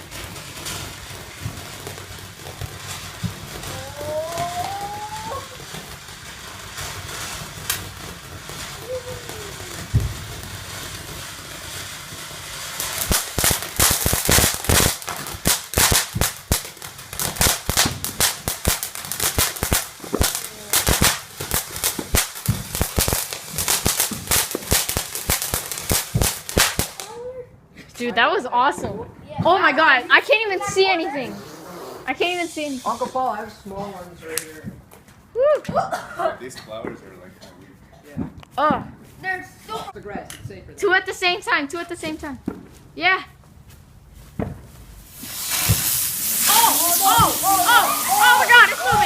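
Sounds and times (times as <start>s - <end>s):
firework bang: 0.0s - 27.1s, 44.4s - 49.0s
crackling firework pops: 0.0s - 27.2s, 34.2s - 35.8s, 44.2s - 49.0s.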